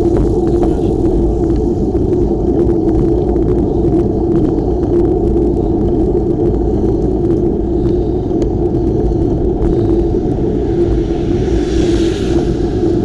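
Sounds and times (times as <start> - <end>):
road noise: 0.0 - 13.0
wind rumble: 0.0 - 13.0.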